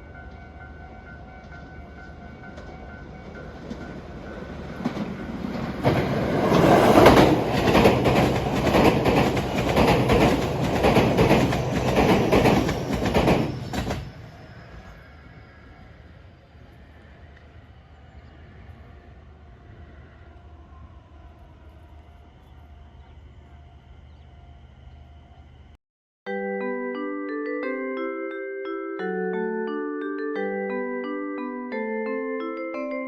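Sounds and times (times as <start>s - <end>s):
train wheels clattering over rails: 2.5s - 14.4s.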